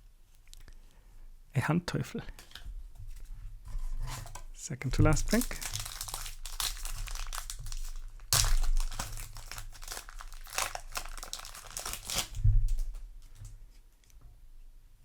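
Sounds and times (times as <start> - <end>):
foil pack tearing and crinkling: 4.1 - 13.4.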